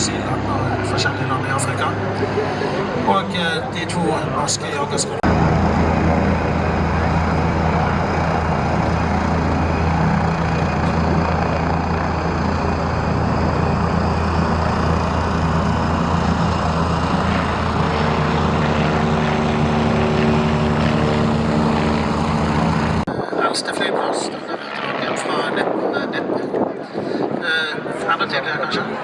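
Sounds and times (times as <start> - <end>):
higher engine tones: 0.0 - 23.1
propeller aircraft engine running: 0.0 - 29.0.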